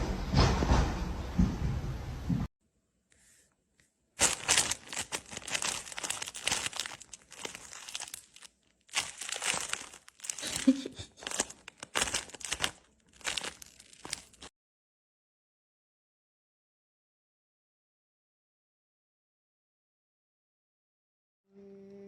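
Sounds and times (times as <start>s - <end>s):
crinkling and rustling: 4.2s - 14.5s.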